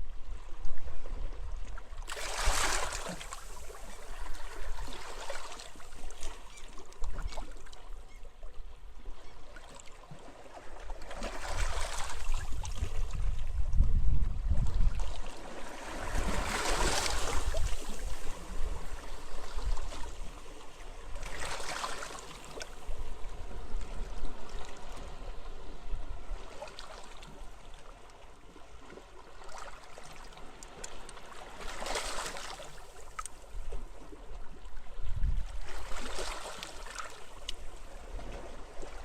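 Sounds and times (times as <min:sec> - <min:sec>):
low rumble of wind: 0:00.0 - 0:02.1, 0:10.6 - 0:21.4, 0:33.4 - 0:39.0
small waves washing onto beach: 0:02.0 - 0:07.9, 0:10.2 - 0:13.6, 0:14.9 - 0:39.0.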